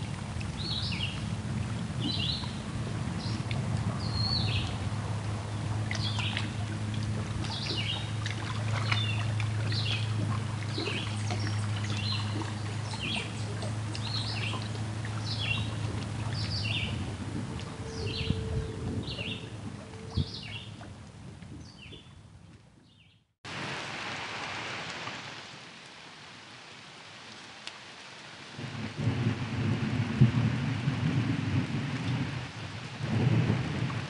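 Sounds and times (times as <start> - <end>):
steady low drone: 0.1 - 21.6.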